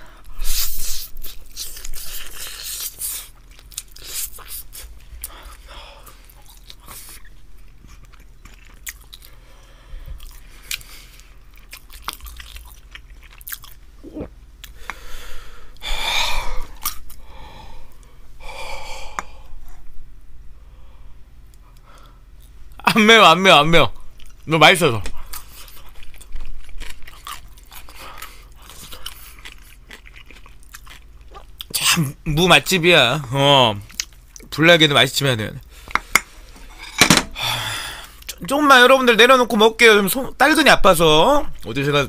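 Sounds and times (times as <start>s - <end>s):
person chewing wet smacking: 0.5s - 9.4s, 10.1s - 15.0s, 24.2s - 31.8s.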